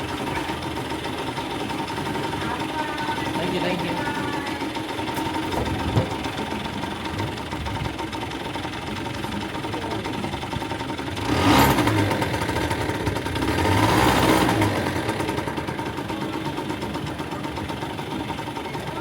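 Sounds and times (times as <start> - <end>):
go-kart engine running: 0.0 - 19.0.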